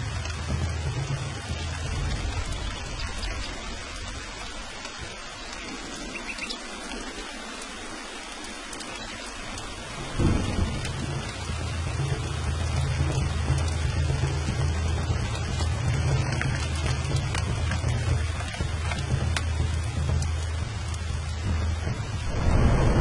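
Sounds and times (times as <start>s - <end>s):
heavy rain: 0.0s - 23.0s
rolling thunder: 1.4s - 6.2s, 9.6s - 16.1s, 19.5s - 23.0s
sharp thunderclap: 1.8s - 5.1s, 10.0s - 15.1s, 21.4s - 23.0s.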